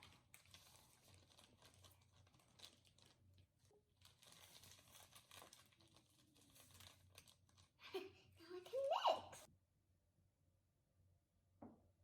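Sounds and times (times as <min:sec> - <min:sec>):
slime crinkling and ticking: 0:00.0 - 0:07.8.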